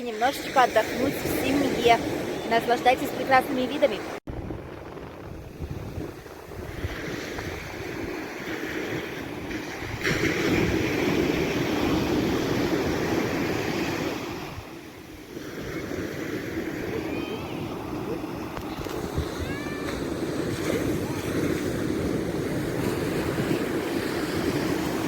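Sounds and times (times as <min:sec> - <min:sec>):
surf breaking on sandy beach: 0:00.0 - 0:25.0
wind buffeting microphone: 0:00.0 - 0:25.0.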